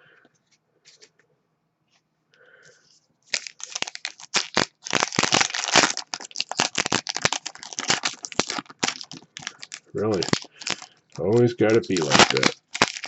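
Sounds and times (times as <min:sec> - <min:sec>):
foil wrapper crinkling and tearing: 0:03.3 - 0:13.0.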